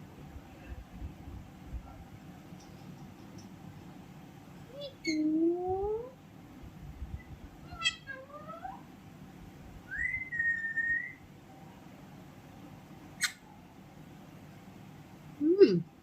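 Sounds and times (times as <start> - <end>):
parrot chirping: 4.7 - 5.4, 7.6 - 8.9, 9.9 - 11.3, 13.1 - 13.5.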